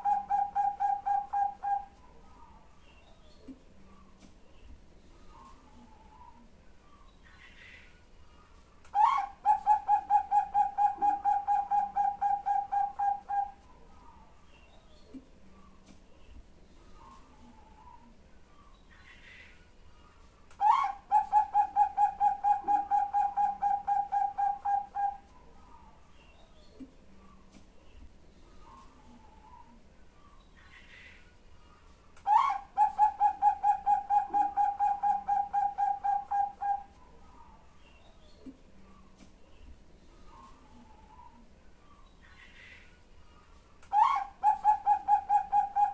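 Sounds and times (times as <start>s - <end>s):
dove cooing: 0.0s - 2.0s, 8.9s - 13.6s, 20.6s - 25.3s, 32.3s - 37.0s, 43.9s - 45.9s.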